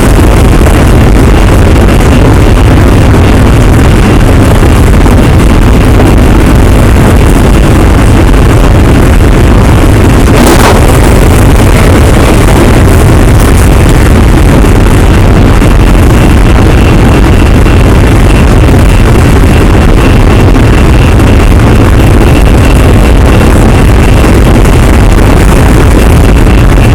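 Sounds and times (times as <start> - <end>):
train wheels and motors rumbling: 0.0 - 26.9
brief harsh noise: 10.1 - 12.8
faint high tone: 10.3 - 11.2.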